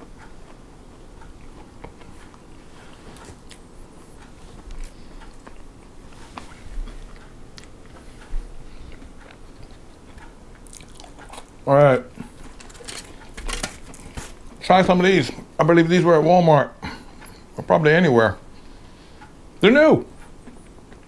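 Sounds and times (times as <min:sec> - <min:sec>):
chewing crunchy snacks: 0:08.9 - 0:14.4.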